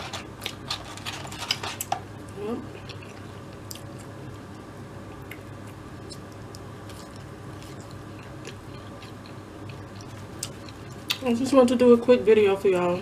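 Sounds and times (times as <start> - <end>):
steady low hum: 0.0 - 13.0
person chewing food: 5.1 - 11.2.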